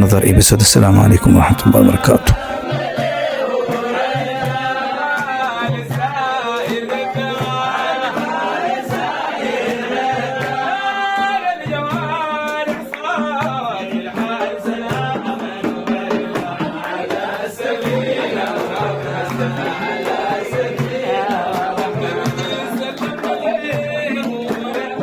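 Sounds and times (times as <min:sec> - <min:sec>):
voices singing praise song: 0:00.0 - 0:05.0.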